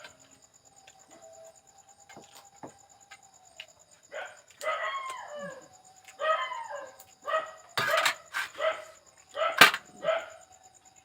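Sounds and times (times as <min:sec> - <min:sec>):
dog barking: 0:04.1 - 0:05.2, 0:06.2 - 0:10.4.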